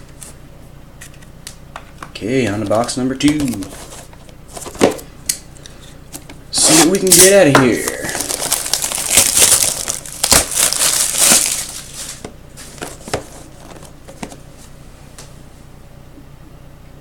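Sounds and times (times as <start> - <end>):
packaging tearing and crumpling: 6.6 - 13.2.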